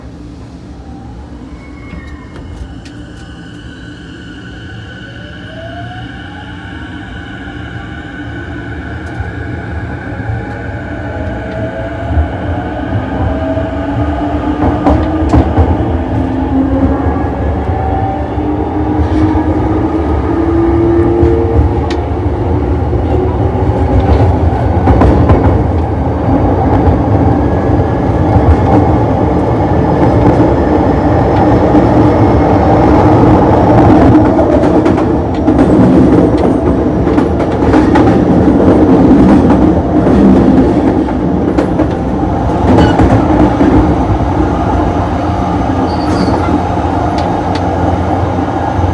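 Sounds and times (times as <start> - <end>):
rumble of wheels on track: 0.0 - 48.9
rail joint clacks: 33.7 - 48.3.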